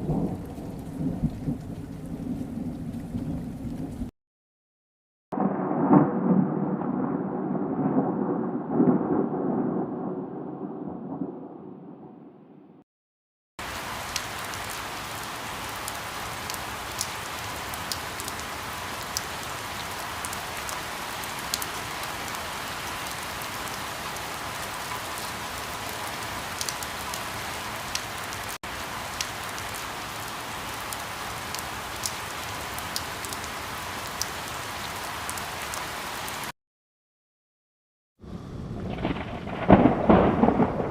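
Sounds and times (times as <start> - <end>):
raindrops tapping close by: 0.0 - 4.1, 13.6 - 34.6, 38.9 - 40.9
steady rain: 0.0 - 4.1, 13.6 - 36.5, 38.2 - 40.9.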